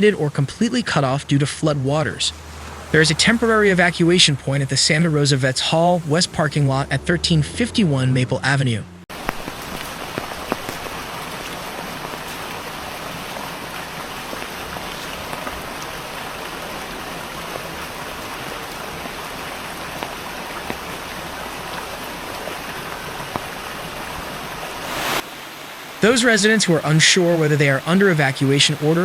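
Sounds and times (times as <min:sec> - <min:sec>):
steady rain hiss: 0:01.7 - 0:06.9, 0:09.1 - 0:29.0
raindrops ticking on surface: 0:02.2 - 0:07.0, 0:09.1 - 0:24.8.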